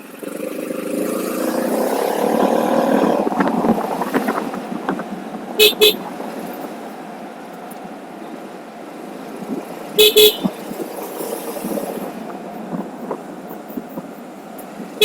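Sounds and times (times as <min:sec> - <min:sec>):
road noise while riding: 0:00.0 - 0:15.0
vehicle horn toots: 0:05.6 - 0:06.0, 0:10.0 - 0:10.6.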